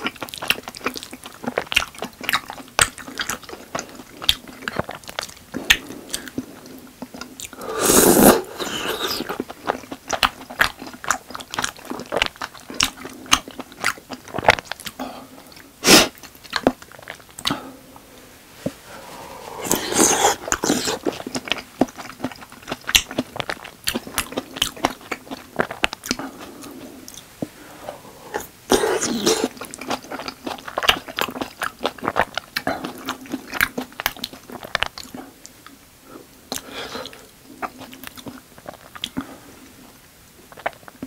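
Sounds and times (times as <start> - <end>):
sticky chewing and mouth clicks: 0.0 - 7.6, 8.2 - 17.6, 19.6 - 35.8, 36.5 - 39.3, 40.5 - 41.0
slurping food: 7.6 - 9.4, 18.9 - 21.5.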